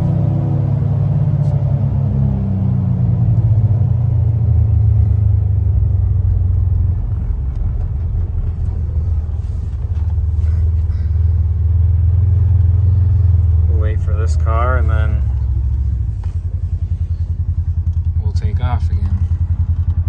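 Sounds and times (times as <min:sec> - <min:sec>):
engine and drivetrain rumble: 0:00.0 - 0:20.0.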